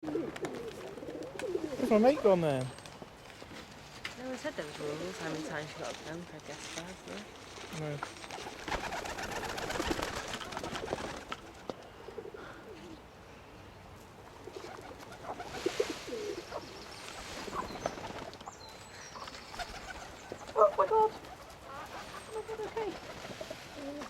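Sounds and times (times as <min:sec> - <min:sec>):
crowd of birds calling: 0:14.4 - 0:24.0.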